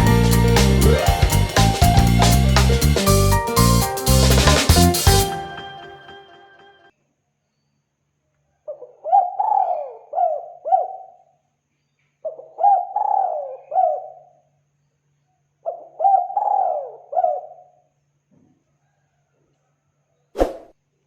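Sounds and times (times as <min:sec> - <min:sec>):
dove cooing: 0:09.0 - 0:11.0, 0:12.6 - 0:14.1.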